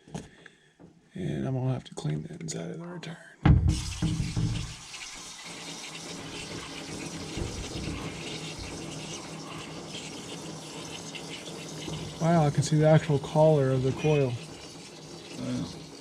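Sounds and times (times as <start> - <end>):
sharp knock: 3.5 - 4.8
water spraying onto coil: 3.7 - 16.0.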